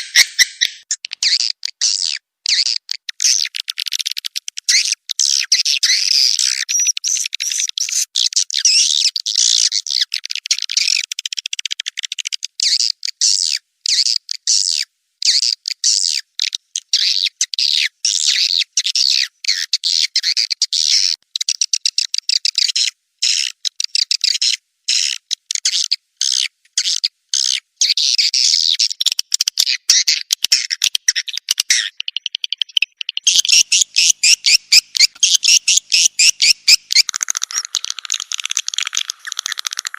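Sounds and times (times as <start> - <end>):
swiftlets chirping: 0.0 - 1.0, 32.1 - 39.9.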